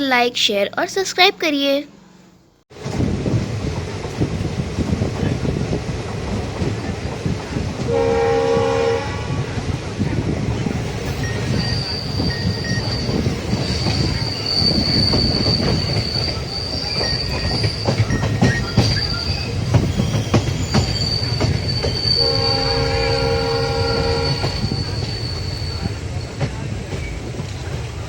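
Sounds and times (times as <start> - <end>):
train coach rumble: 0.1 - 28.0
locomotive horn: 7.9 - 9.7, 22.2 - 24.8
wheels clicking over rail joints: 11.0 - 22.1
high wheel squeal: 11.1 - 26.5.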